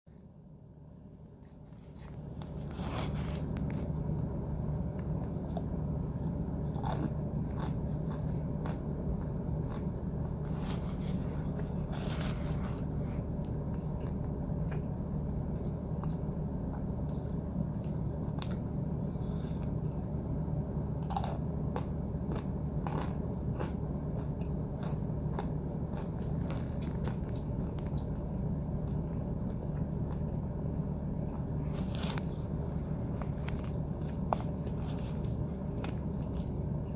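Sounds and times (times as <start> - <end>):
steady low hum: 0.1 - 36.9
person biting and chewing powder: 5.2 - 13.4, 20.9 - 28.2.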